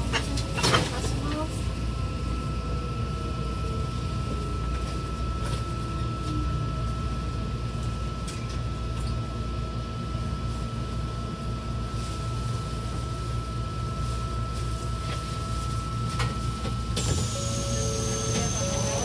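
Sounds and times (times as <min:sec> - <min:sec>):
high whine: 0:17.0 - 0:19.0.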